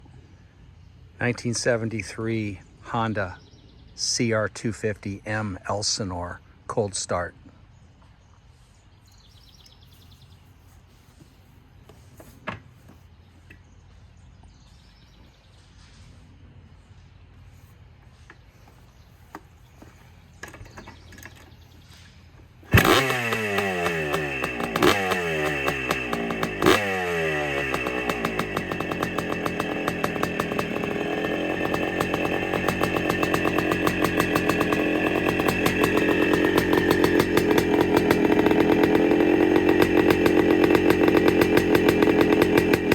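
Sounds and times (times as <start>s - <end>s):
two-stroke engine starting and running: 22.6s - 42.9s.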